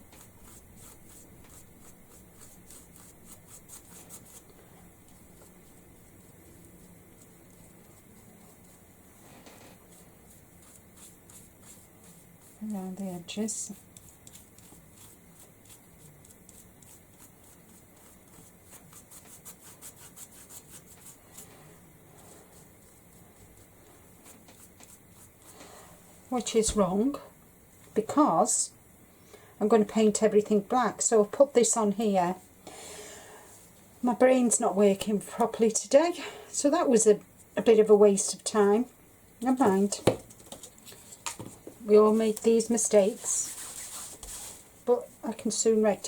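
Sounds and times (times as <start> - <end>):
brush scratching on wooden board: 0.0 - 25.5, 42.1 - 44.6.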